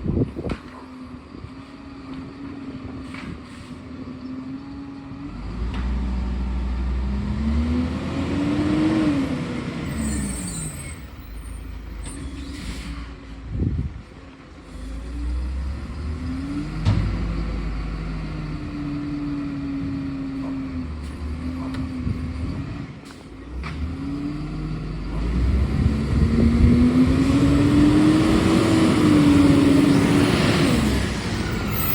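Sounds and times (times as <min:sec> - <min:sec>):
garbage truck engine revving: 0:05.3 - 0:12.5, 0:23.5 - 0:31.9.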